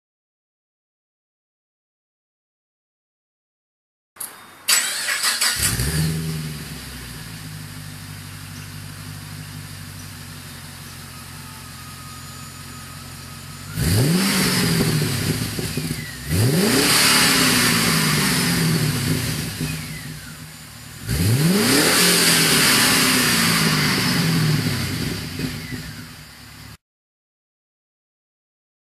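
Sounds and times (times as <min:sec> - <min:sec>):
car engine starting: 0:04.2 - 0:26.8
car engine idling and revving: 0:04.7 - 0:26.8.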